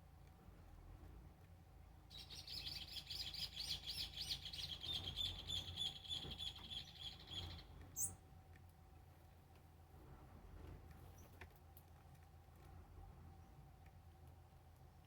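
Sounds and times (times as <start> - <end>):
songbird trilling: 2.1 - 8.2.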